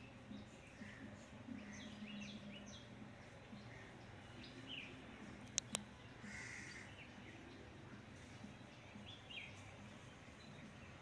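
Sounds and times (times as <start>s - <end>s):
birds calling: 0.0s - 11.0s
sharp clicks: 5.4s - 5.9s.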